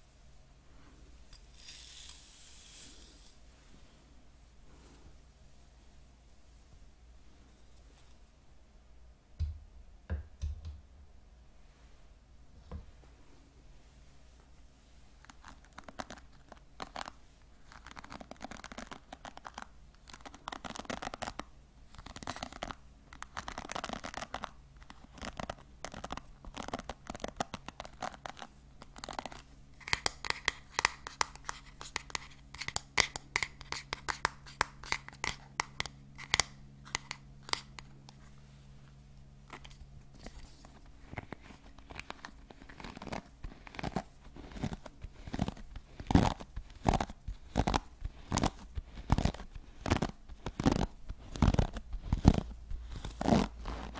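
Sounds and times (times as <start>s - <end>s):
faint steady hum: 0.0s - 53.9s
hair brush strokes: 1.3s - 4.0s, 40.2s - 53.9s
sharp clicks and scratches: 15.2s - 37.9s, 39.5s - 53.9s.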